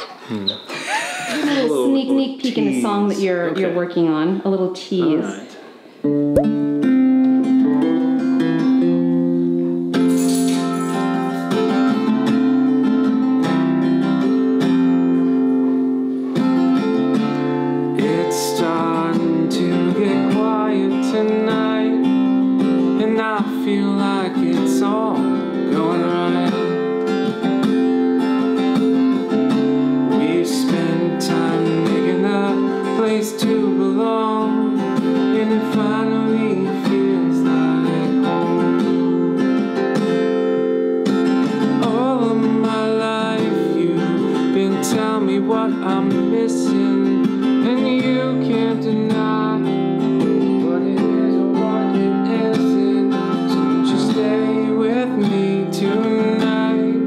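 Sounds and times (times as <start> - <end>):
acoustic guitar strumming: 6.0 - 57.0.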